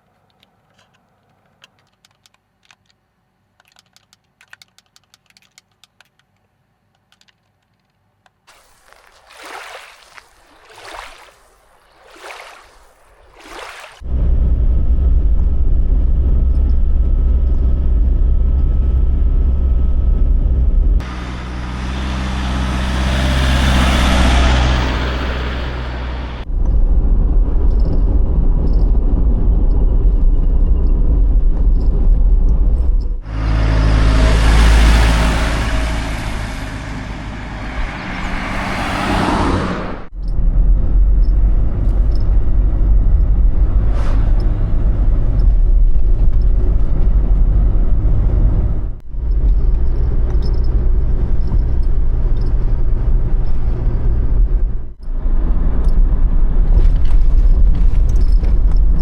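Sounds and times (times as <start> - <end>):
van engine and road rumble: 14.0 - 59.0.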